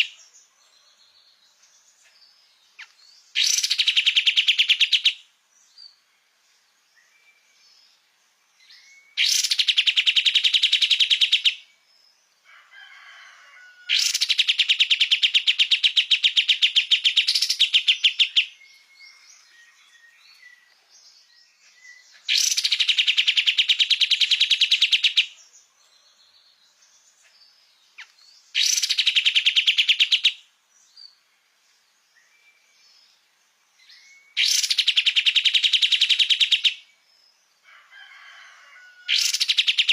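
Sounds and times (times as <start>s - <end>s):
songbird trilling: 0.0s - 0.2s, 2.7s - 6.0s, 8.6s - 11.7s, 13.9s - 25.4s, 27.4s - 30.4s, 33.8s - 36.9s, 39.0s - 39.9s
faint bird chirps: 0.0s - 39.9s.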